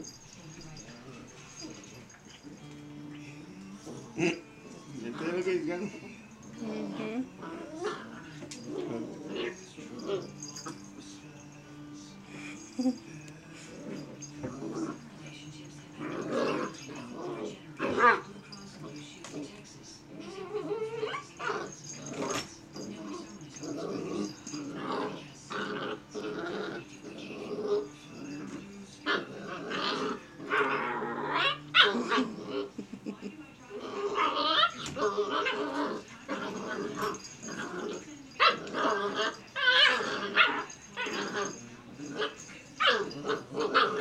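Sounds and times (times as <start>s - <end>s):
puppy growling: 0.0s - 11.0s, 12.2s - 44.0s
puppy barking: 30.0s - 32.4s, 38.4s - 41.6s, 42.2s - 44.0s.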